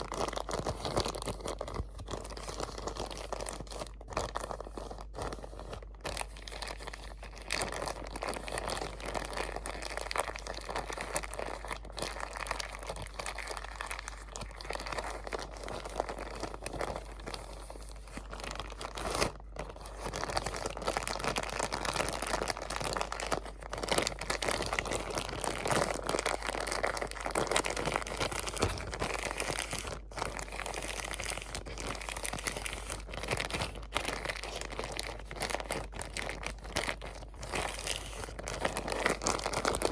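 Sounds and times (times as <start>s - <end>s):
crinkly material crinkling: 0.0s - 39.9s.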